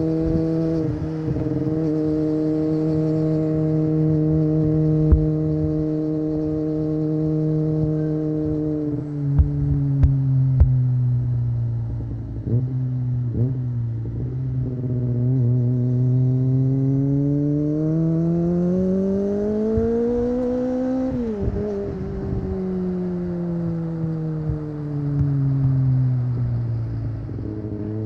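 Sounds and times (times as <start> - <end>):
motorcycle engine while riding: 0.0 - 28.0.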